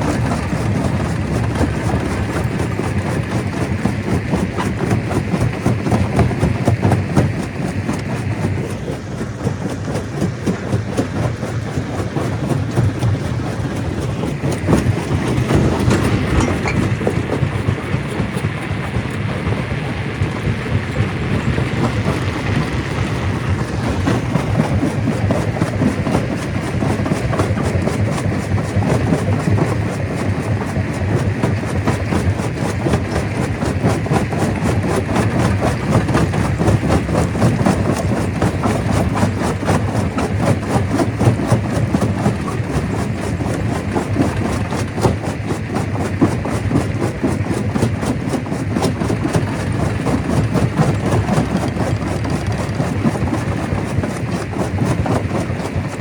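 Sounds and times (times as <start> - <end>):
stone crusher crushing rock: 0.0 - 56.0.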